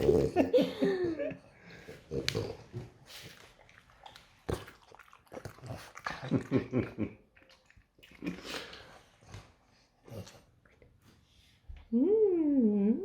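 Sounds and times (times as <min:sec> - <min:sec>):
dog snorting and grunting: 0:00.0 - 0:00.5, 0:02.0 - 0:03.0.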